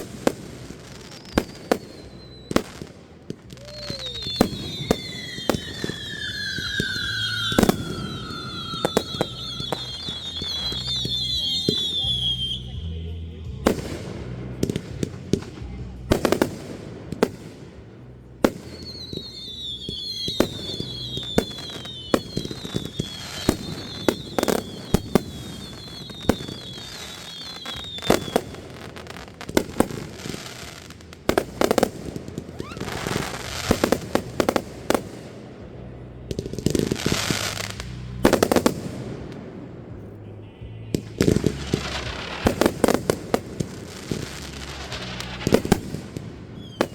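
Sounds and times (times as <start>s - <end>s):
firework crackling: 0.0s - 46.9s
fireworks bangs and pops: 0.0s - 46.9s
wavering high firework whistle: 1.0s - 12.8s, 18.7s - 28.7s, 32.5s - 34.6s, 40.9s - 46.9s.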